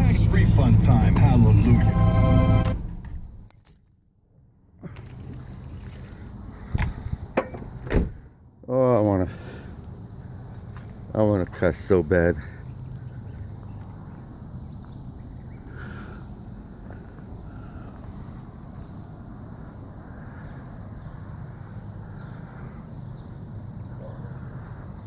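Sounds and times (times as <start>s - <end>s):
low hum: 0.0s - 3.7s.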